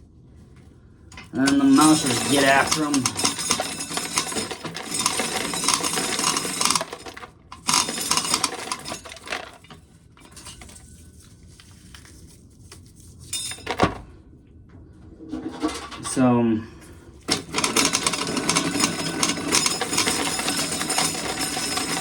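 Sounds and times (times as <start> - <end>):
corn kernels rattling into a pail: 1.2 - 9.7, 17.3 - 22.0.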